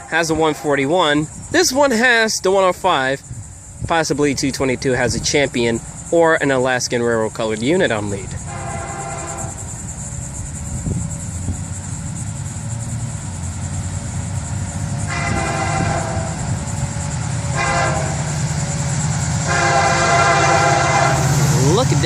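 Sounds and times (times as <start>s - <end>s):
locomotive air horn blasts: 0.0s - 0.9s, 8.4s - 9.7s, 15.0s - 16.6s, 17.4s - 18.4s, 19.4s - 22.0s
diesel locomotive rumble: 0.0s - 22.0s.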